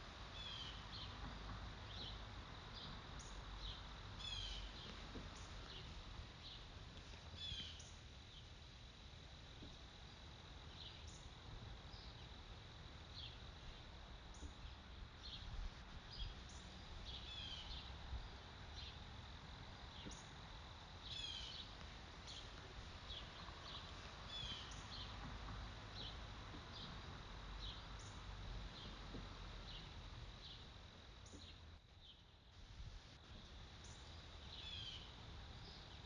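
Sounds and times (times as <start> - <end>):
small birds chirping: 0.4 - 1.3, 1.9 - 8.5, 13.1 - 18.0, 19.9 - 20.4, 21.0 - 32.4, 33.4 - 36.0.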